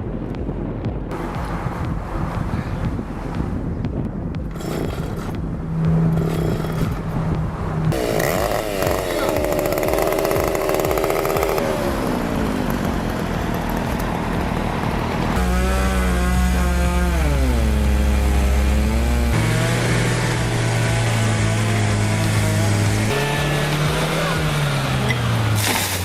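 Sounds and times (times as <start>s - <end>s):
engine revving: 4.4s - 26.0s.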